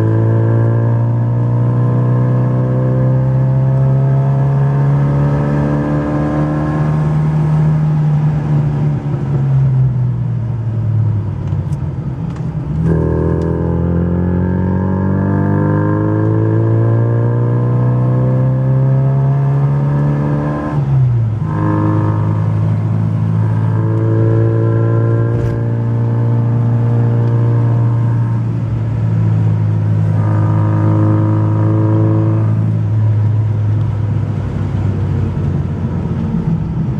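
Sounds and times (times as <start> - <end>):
car engine accelerating: 0.0 - 36.9
gear change: 21.4 - 28.0.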